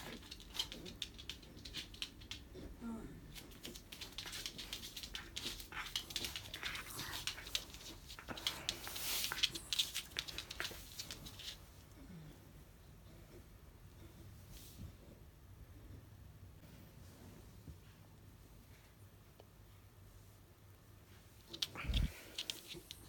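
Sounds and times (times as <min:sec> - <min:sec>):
dog paws clicking: 0:00.0 - 0:02.7, 0:03.3 - 0:11.7
crinkly rustling: 0:03.3 - 0:11.8, 0:21.1 - 0:23.0.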